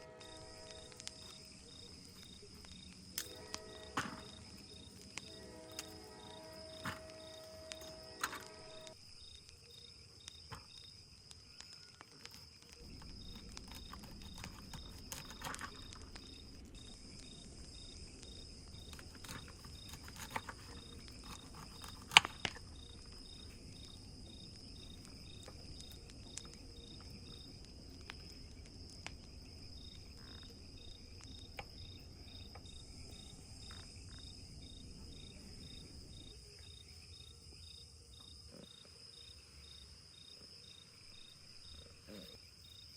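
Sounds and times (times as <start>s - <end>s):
crickets chirping: 0.0s - 42.9s
sharp crack: 0.1s - 9.6s, 10.3s - 29.5s.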